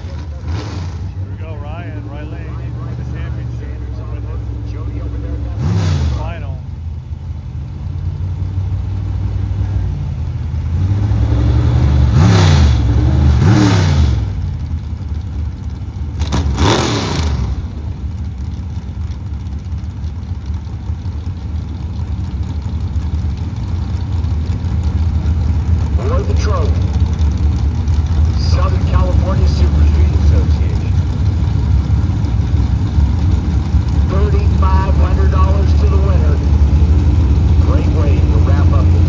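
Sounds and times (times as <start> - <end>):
drag racing engines accelerating: 0.0 - 39.0
loud rush: 33.7 - 39.0.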